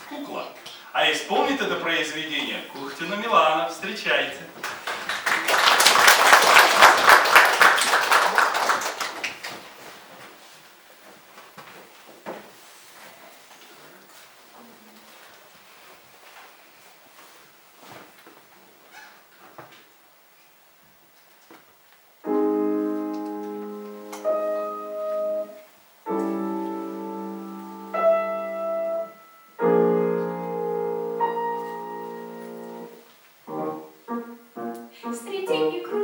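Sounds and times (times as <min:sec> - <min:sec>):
piano chords and melody: 0:22.2 - 0:36.0.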